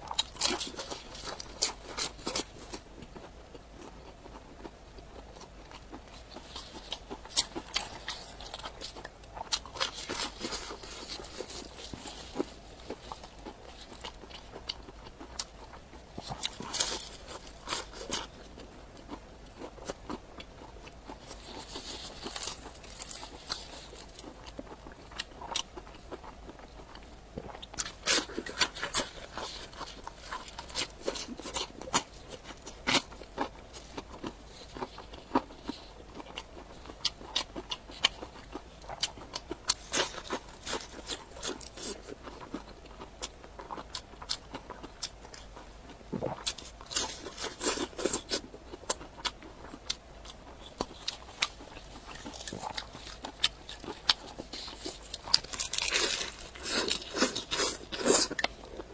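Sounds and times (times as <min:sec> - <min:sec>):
chewing and crunching: 0:00.0 - 0:58.9.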